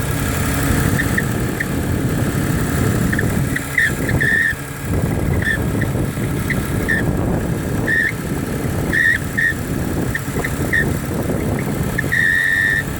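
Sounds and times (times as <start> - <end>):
engine running: 0.0 - 12.9
short high-pitched squeaks: 3.1 - 4.6, 5.3 - 7.1, 7.8 - 8.2, 8.9 - 11.0, 11.6 - 12.9.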